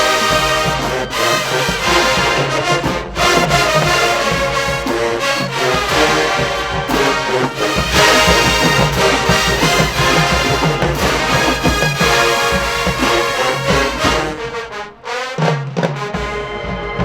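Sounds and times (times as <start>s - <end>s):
brass marching band playing: 0.0s - 17.0s
bass drums beating: 1.7s - 14.4s.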